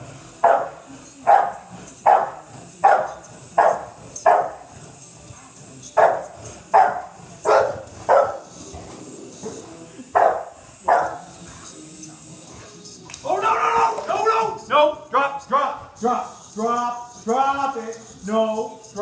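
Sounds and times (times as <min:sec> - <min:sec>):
dog barking: 0:00.4 - 0:04.6, 0:06.0 - 0:08.5, 0:10.2 - 0:11.3.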